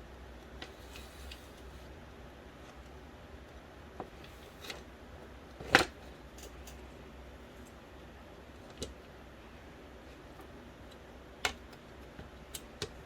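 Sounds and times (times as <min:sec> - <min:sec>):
small clicks and taps: 0:10.9 - 0:13.0.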